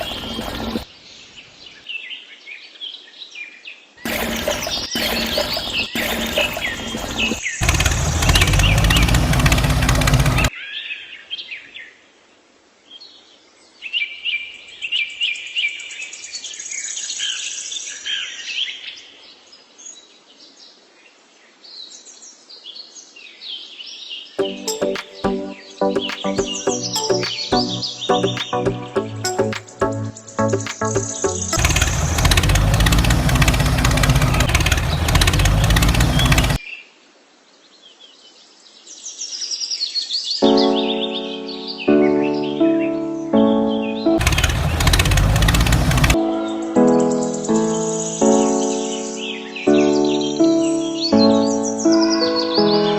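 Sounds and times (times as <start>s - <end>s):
loud machine rattling and rumbling: 0.0s - 0.8s, 4.1s - 10.5s, 31.4s - 36.6s, 44.2s - 46.2s
small birds chirping and trilling: 0.0s - 12.0s, 12.8s - 52.9s.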